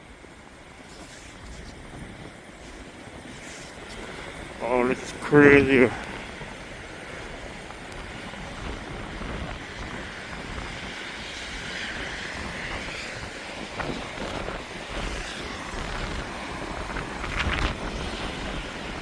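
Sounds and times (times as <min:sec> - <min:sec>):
traffic on snowy roads: 0:00.0 - 0:19.0.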